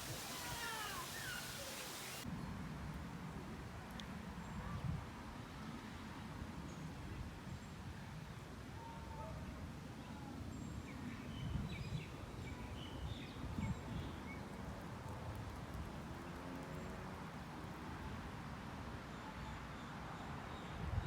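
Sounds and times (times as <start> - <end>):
bird chirps: 0.4 - 2.2.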